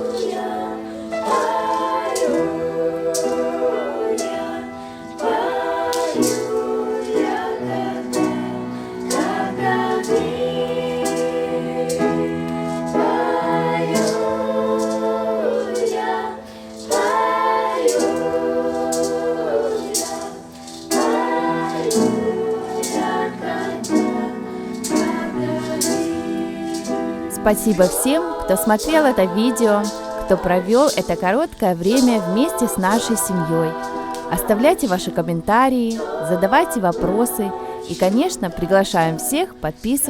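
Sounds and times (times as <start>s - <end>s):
voices singing in harmony: 0.0s - 40.0s.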